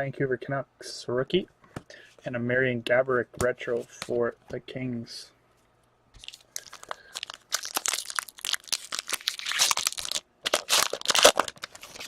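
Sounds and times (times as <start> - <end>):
card pack wrapper tearing: 6.2 - 12.0.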